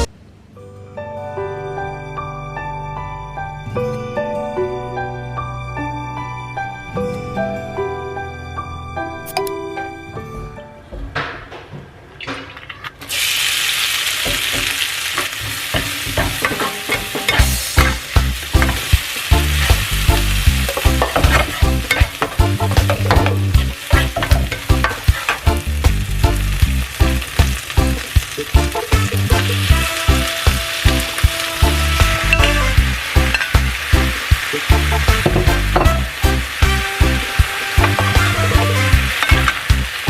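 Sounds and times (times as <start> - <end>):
food sizzling in hot oil: 13.1 - 40.0
spatula scraping a pan: 14.2 - 20.0, 20.6 - 25.5.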